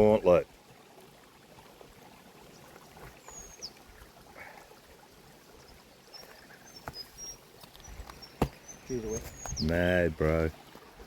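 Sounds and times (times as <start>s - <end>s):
creek water trickling: 0.0s - 11.0s
soft knocks: 8.4s - 8.6s.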